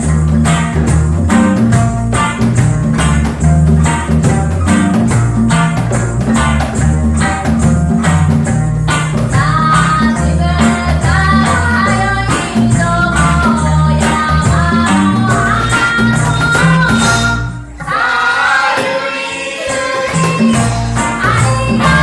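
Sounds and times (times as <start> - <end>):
bass line: 0.0 - 18.0, 20.1 - 22.0
plucked strings off-beat rhythm: 0.0 - 18.2, 19.9 - 22.0
percussion: 0.0 - 22.0
reggae band playing: 0.0 - 22.0
person singing: 9.0 - 22.0.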